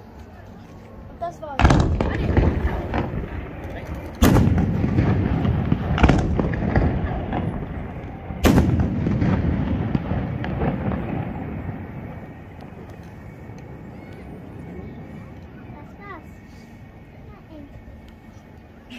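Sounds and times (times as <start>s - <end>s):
rolling rumble: 0.0s - 18.9s
smaller firework bangs: 1.5s - 15.8s
firework shells booming: 1.6s - 14.3s.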